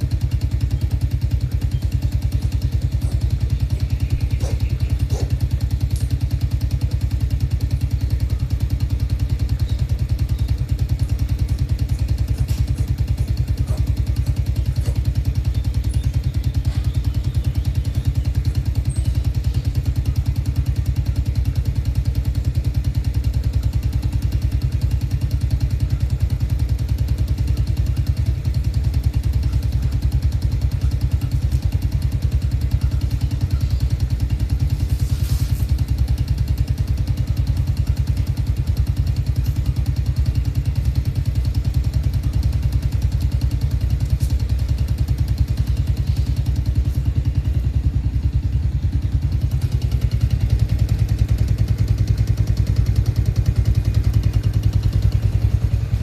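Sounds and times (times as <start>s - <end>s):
motor running: 0.0s - 20.6s, 29.4s - 47.8s.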